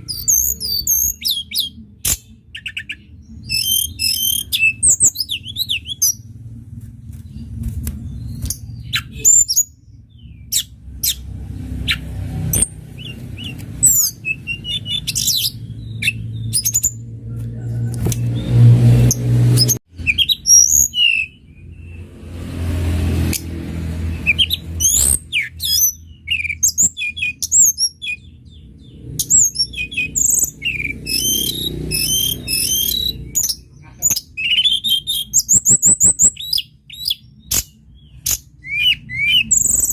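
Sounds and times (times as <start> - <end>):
bird high thin chirps and trills: 0.0 - 6.3, 7.1 - 17.0, 18.2 - 22.0, 24.1 - 39.9
low rumble: 5.4 - 9.0.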